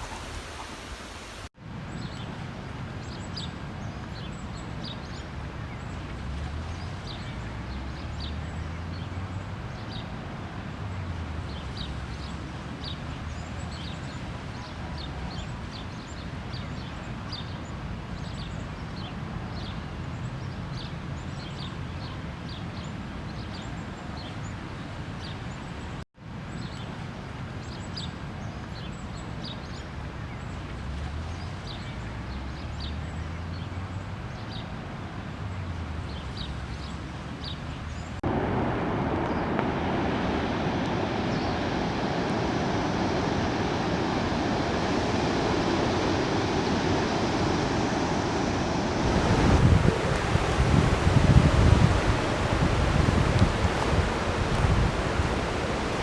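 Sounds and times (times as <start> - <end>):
small birds chirping: 0.0 - 2.3, 41.2 - 51.0
outdoor background hiss: 0.0 - 18.2, 33.8 - 56.0.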